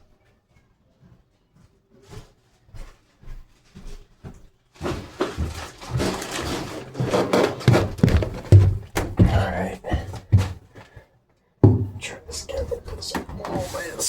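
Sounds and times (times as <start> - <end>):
rattling scraping and knocking: 4.8 - 10.6.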